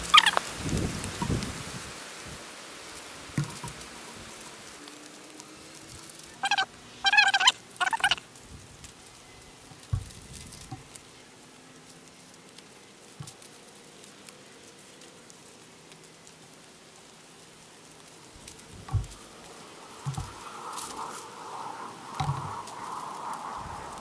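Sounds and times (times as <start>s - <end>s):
bird calling: 0.0s - 0.5s, 6.2s - 8.3s
leaves rustling: 0.0s - 24.0s.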